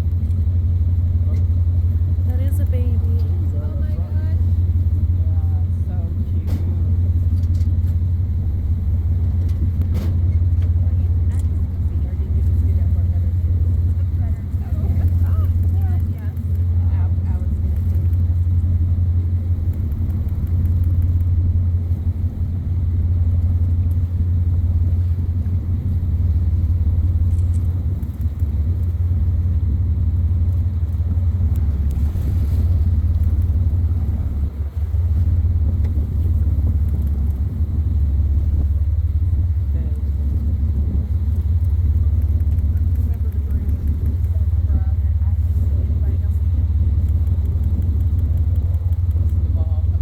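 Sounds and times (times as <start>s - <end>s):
boat engine droning: 0.0s - 50.0s.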